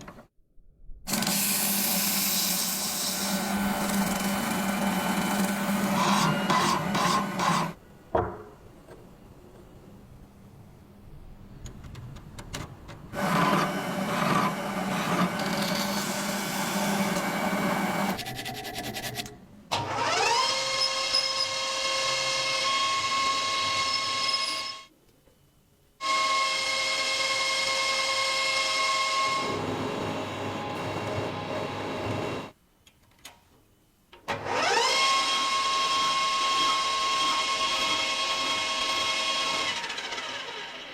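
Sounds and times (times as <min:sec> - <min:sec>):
rough power tool working noise: 0:01.1 - 0:07.8, 0:13.2 - 0:18.2, 0:34.3 - 0:40.9.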